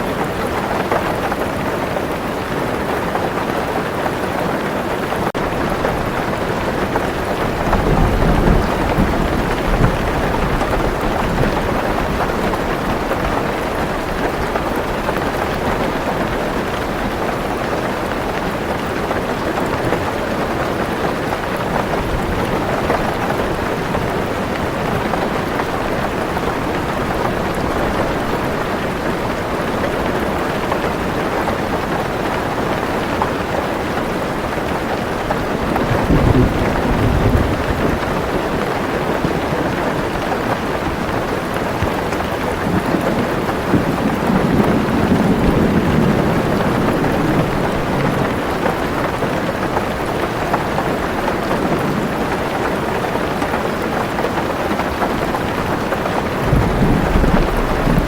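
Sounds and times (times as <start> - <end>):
heavy rain on a car roof: 0.0 - 58.0
low rolling thunder: 5.3 - 17.3, 35.5 - 40.2, 41.8 - 49.3, 55.2 - 58.0.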